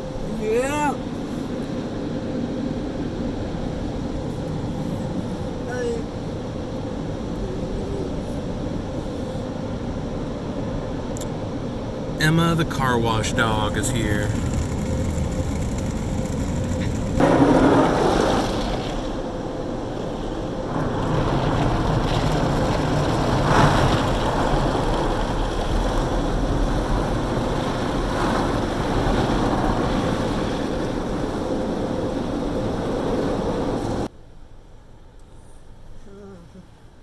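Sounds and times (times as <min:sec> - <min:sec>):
faint machine hum: 0:00.0 - 0:37.0
water spraying on car: 0:11.9 - 0:34.1.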